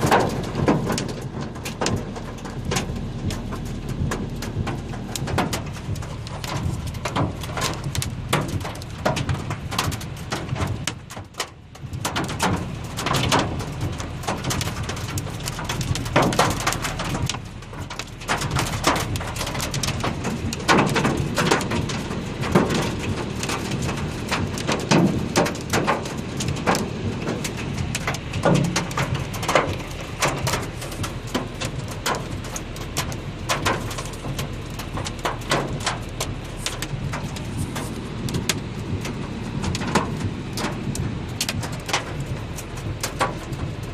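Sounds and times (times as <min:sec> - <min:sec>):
hailstones clattering on hard surfaces: 0:00.0 - 0:43.9
steady low rush: 0:01.2 - 0:09.7, 0:17.3 - 0:43.7.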